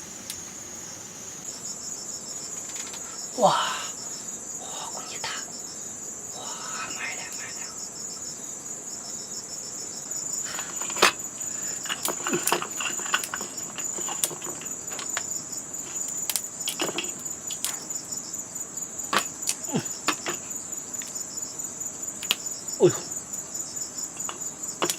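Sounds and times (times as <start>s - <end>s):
high-pitched insect chorus: 0.0s - 24.9s
sharp clicks and snaps: 11.8s - 15.3s, 15.9s - 18.0s, 19.1s - 20.4s, 21.0s - 21.2s, 22.2s - 22.5s, 24.2s - 24.9s.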